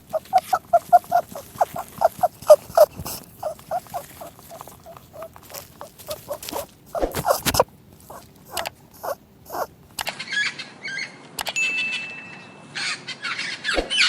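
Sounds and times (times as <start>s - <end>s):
small animal squeaking: 0.0s - 10.2s.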